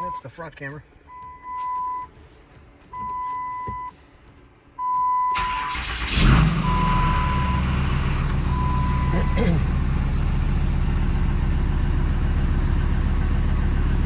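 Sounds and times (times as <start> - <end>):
dashboard warning chime beeping: 0.0 - 0.4, 1.1 - 2.2, 2.9 - 4.0, 4.8 - 5.7, 6.6 - 7.7, 8.4 - 9.7
diesel engine cranking and idling: 5.3 - 14.0.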